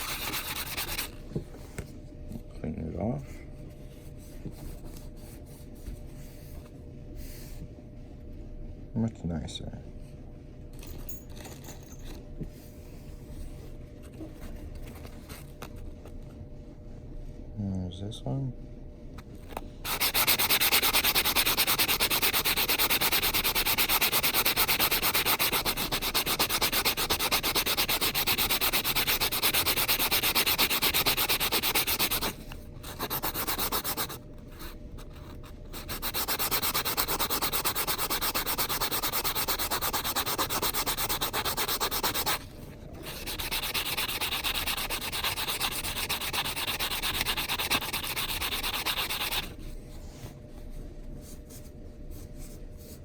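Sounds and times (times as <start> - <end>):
metal ring sanded with nail file: 0.0 - 1.2, 19.8 - 34.2, 35.6 - 42.4, 43.0 - 49.5.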